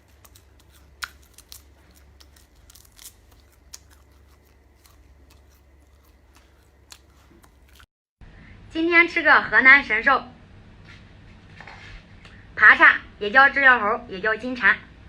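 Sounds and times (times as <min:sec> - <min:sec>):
crisp crunches of chewing: 0:00.0 - 0:07.9
steady low hum: 0:00.0 - 0:15.0.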